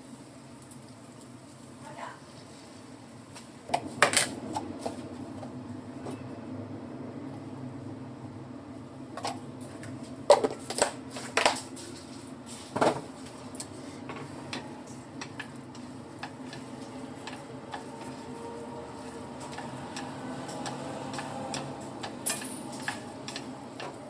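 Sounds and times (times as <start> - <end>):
low hum: 2.8 - 12.5.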